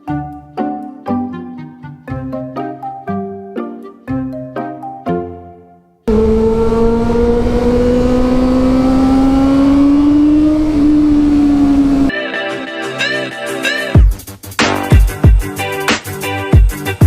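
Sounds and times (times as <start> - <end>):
motorcycle engine at high revs: 6.1 - 12.1.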